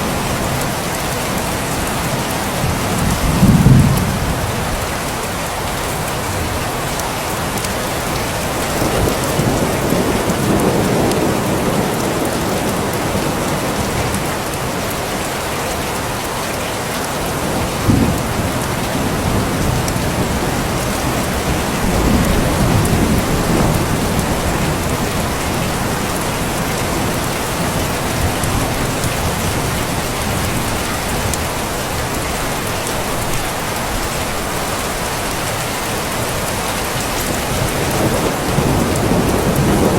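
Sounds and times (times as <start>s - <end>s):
thunder rumbling: 0.0s - 4.9s, 8.0s - 14.5s, 17.3s - 34.0s, 36.2s - 39.9s
steady rain: 0.0s - 39.9s.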